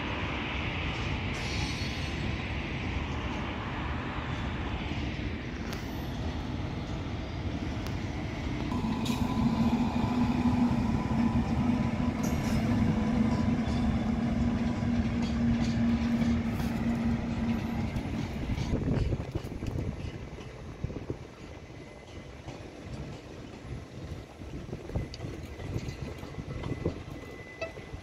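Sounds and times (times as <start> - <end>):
passing train rumble: 0.0 - 28.0
steady hum: 7.9 - 18.5.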